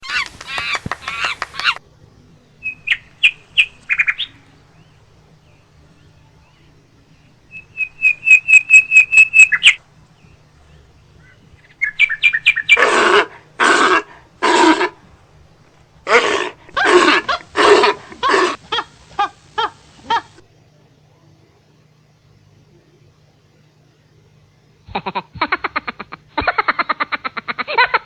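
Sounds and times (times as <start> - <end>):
harsh monkey calls: 0.0 - 20.4, 24.9 - 28.0
monkey chirping: 0.0 - 20.4.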